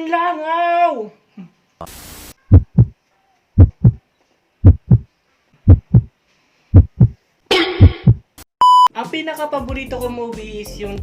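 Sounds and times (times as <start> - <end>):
heartbeat double thumps: 2.5 - 3.0, 3.6 - 4.0, 4.6 - 5.1, 5.7 - 6.1, 6.7 - 8.3.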